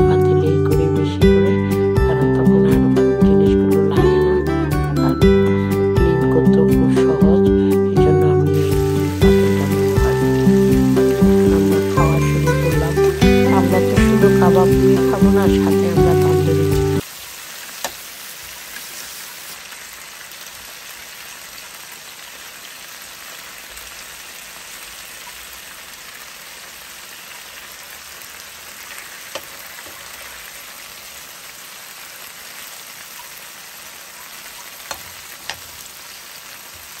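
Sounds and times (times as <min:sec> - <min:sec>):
meat and onions sizzling in oil: 0:08.5 - 0:37.0.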